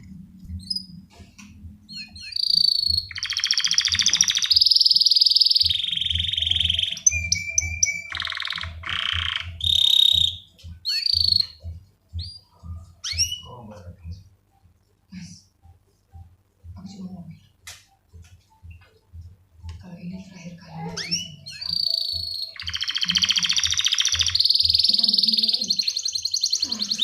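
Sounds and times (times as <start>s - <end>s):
canary singing trills: 0.5s - 14.8s, 19.9s - 27.0s.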